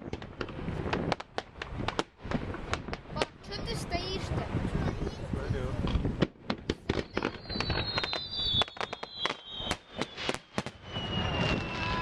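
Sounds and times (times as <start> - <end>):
fireworks cracks and bangs: 0.0 - 5.0, 5.7 - 12.0.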